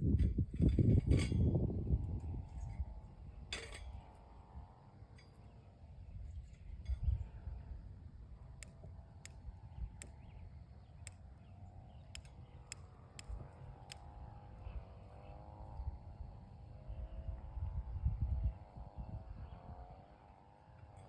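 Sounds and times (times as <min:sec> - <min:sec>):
campfire crackling and popping: 0:08.5 - 0:10.2, 0:12.0 - 0:14.1.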